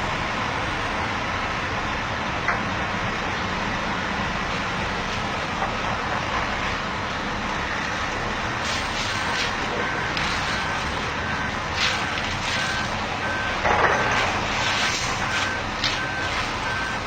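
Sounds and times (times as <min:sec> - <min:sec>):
heavy truck engine running: 0:00.0 - 0:17.0
reversing alarm beeping: 0:07.6 - 0:17.0.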